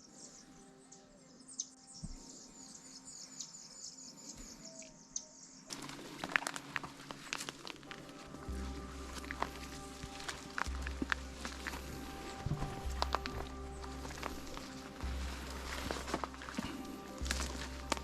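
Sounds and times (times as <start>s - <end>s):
rustling and crackling clicks: 5.7s - 18.0s.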